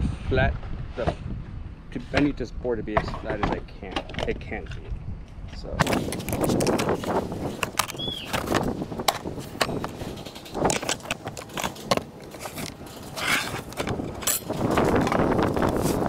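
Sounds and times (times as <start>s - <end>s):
rustling clatter: 5.6s - 16.0s.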